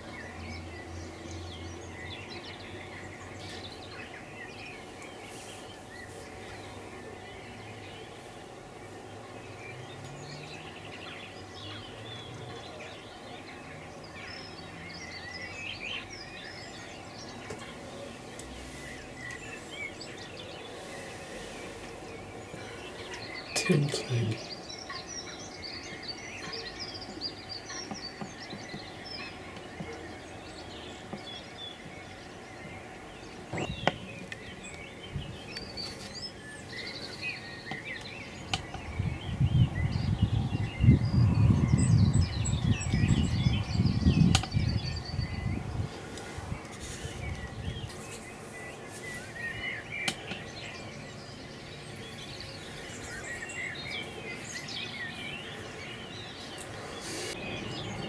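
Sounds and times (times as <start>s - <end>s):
songbirds chirping and singing: 0.0s - 58.0s.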